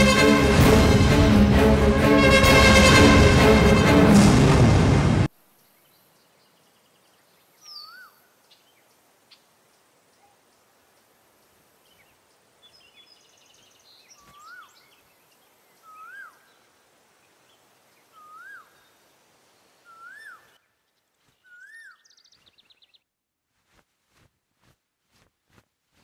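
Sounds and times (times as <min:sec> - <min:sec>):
steady background hiss: 0:05.3 - 0:21.1.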